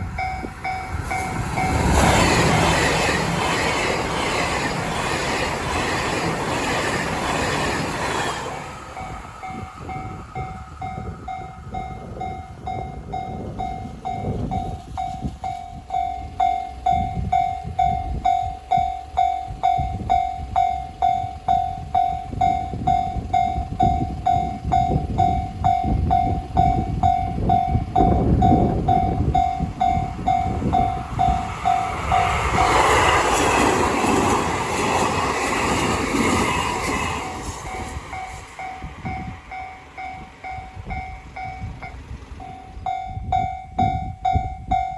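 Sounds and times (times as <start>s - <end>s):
train rumble: 0.0s - 44.9s
level-crossing bell ringing: 8.9s - 32.8s, 37.7s - 44.9s.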